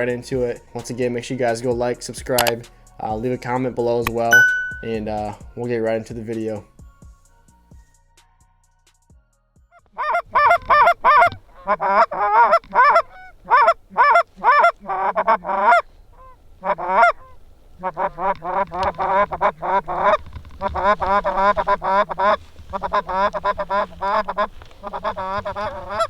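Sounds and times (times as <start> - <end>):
goose honking and clucking: 10.0 - 26.0.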